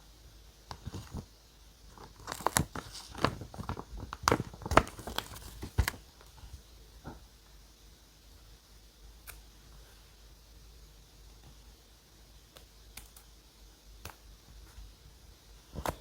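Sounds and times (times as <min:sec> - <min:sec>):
paper crinkling and tearing: 0:01.9 - 0:06.0.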